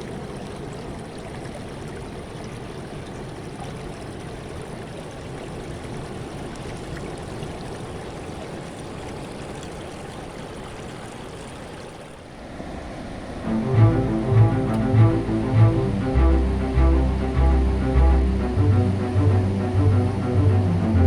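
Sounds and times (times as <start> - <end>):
sea waves washing: 12.3 - 21.0.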